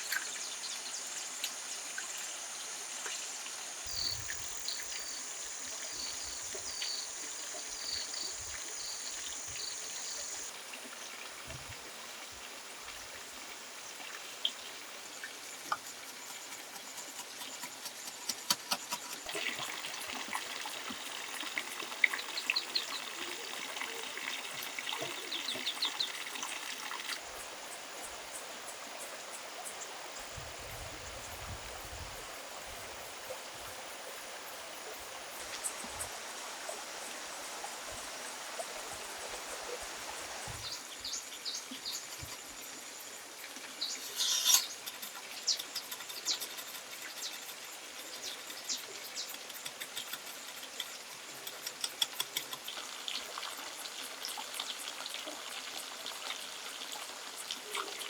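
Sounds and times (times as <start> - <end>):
water trickling: 19.1 - 28.0, 35.3 - 58.0.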